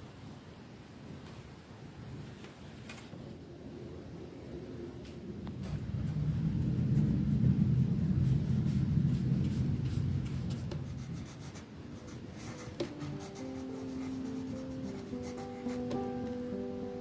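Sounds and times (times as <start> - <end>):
low rumble: 3.4 - 11.5
pencil scratching on paper: 8.2 - 16.0
soft plucked background music: 12.3 - 17.0.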